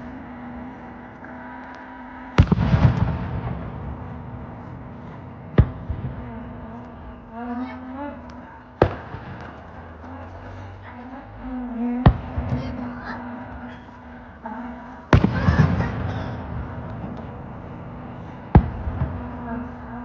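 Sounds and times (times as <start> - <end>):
firework crackling and rumble: 2.4 - 7.3, 15.1 - 20.0.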